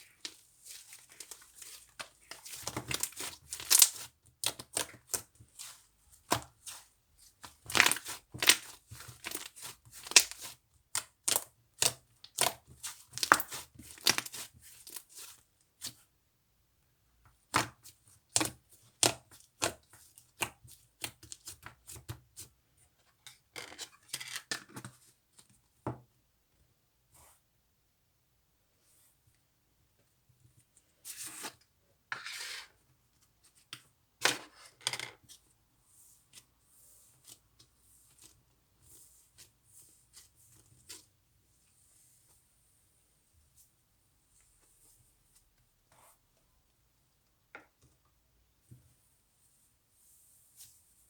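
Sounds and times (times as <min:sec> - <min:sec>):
slime crackling and popping: 0:02.9 - 0:04.1, 0:09.4 - 0:10.5.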